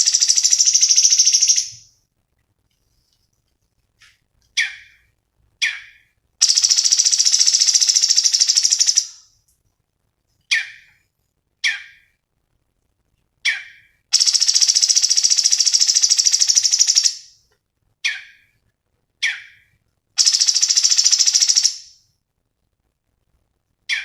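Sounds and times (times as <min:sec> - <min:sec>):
fast high bird trill: 0:00.0 - 0:01.8, 0:05.6 - 0:09.1, 0:13.5 - 0:17.2, 0:20.2 - 0:21.9
songbird singing: 0:00.0 - 0:01.9, 0:04.5 - 0:09.3, 0:10.4 - 0:11.0, 0:11.6 - 0:12.1, 0:13.4 - 0:17.4, 0:18.0 - 0:18.5, 0:19.2 - 0:22.0.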